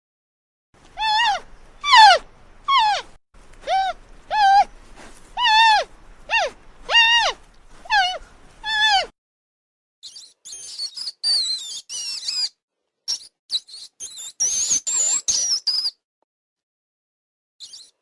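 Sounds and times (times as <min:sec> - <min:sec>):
rats squeaking: 0:01.0 - 0:04.7, 0:10.0 - 0:16.0, 0:17.6 - 0:18.0.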